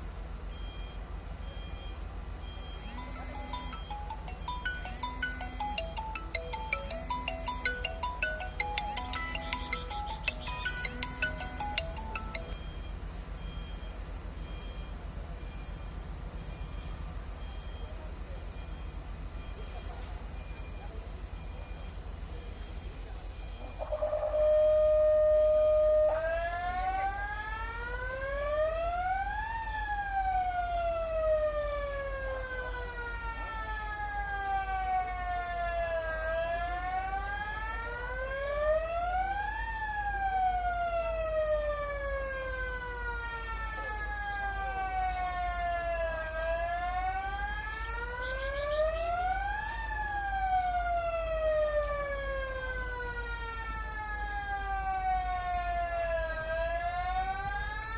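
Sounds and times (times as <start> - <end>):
electronic siren wailing: 2.7 - 12.7, 23.6 - 39.4.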